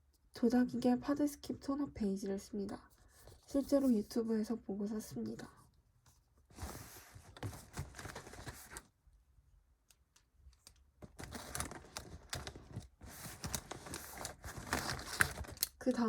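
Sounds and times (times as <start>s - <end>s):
cosmetic items clicking and rustling: 10.6s - 16.0s.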